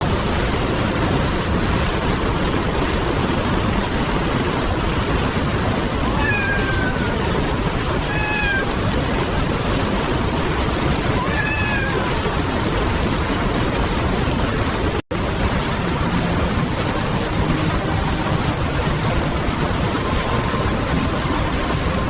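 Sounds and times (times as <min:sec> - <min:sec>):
rushing river water: 0:00.0 - 0:22.0
cat meowing: 0:06.0 - 0:07.4, 0:08.0 - 0:08.8, 0:11.1 - 0:12.2.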